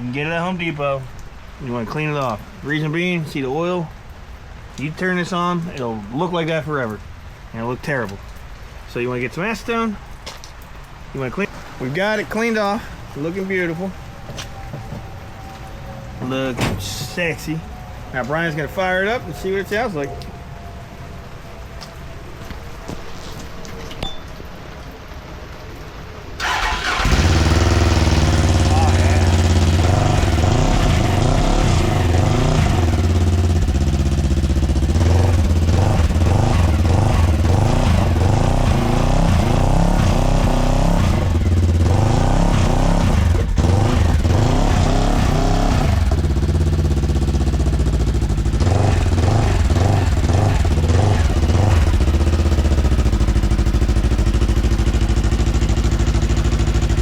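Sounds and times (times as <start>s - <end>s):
engine revving and idling: 26.4s - 57.0s.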